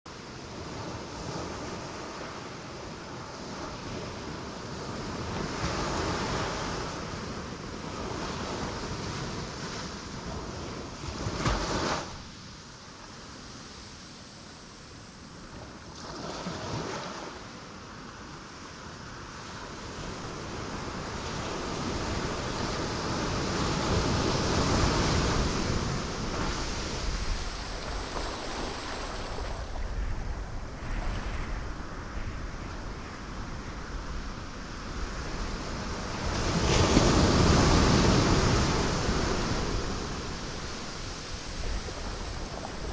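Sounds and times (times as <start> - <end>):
surf breaking on rocks: 21.4 - 42.9.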